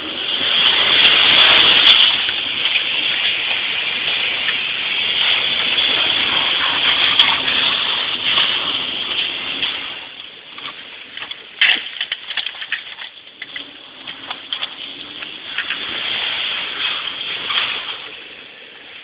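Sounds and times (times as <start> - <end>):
engine revving: 0.0 - 12.7, 13.3 - 19.0
tyres churning through snow: 0.0 - 19.0
sharp clicks and knocks: 10.2 - 15.9.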